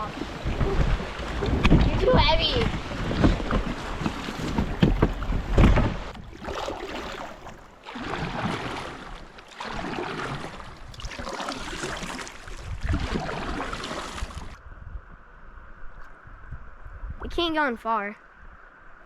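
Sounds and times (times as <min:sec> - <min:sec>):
wind on microphone: 0:00.0 - 0:06.6, 0:10.3 - 0:19.0
kayak knocks and bumps: 0:00.0 - 0:11.1
paddle strokes splashing: 0:00.0 - 0:14.6.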